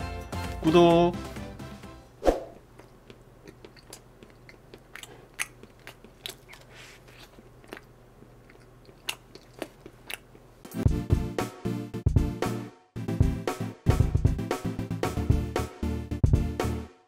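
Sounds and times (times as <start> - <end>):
person chewing crunchy bread: 2.6 - 10.7.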